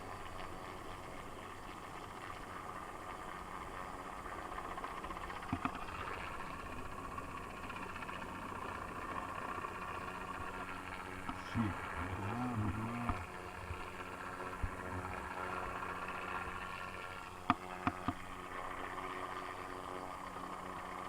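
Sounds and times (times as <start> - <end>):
engine droning hum: 4.2 - 21.0.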